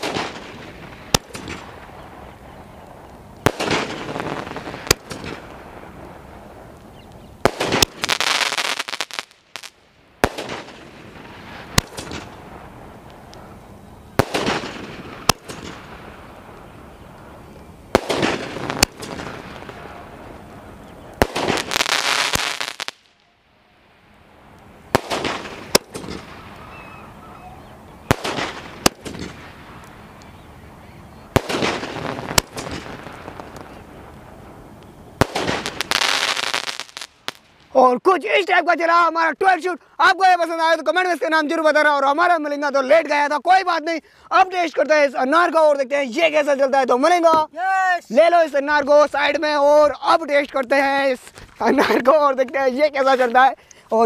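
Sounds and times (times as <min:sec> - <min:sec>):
fireworks bangs: 0:00.0 - 0:23.4, 0:24.2 - 0:38.6
crackling firework bursts: 0:00.0 - 0:54.0.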